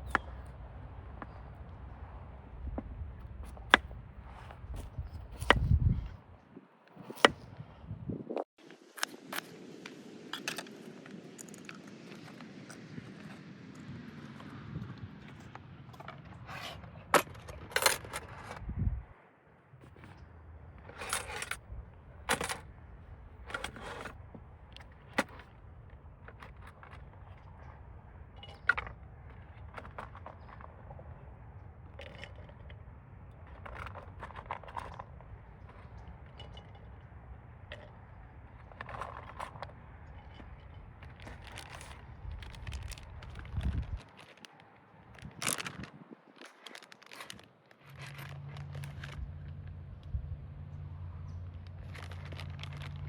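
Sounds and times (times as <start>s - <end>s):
metallic clinks and knocks: 17.1s - 18.6s
steady low rumble: 18.5s - 19.2s.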